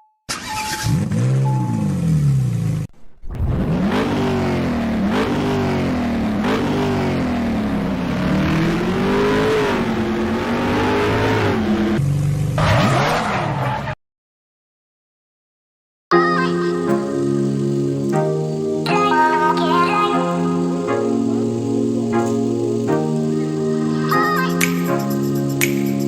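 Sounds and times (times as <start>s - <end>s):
car engine revving: 0.3s - 13.7s.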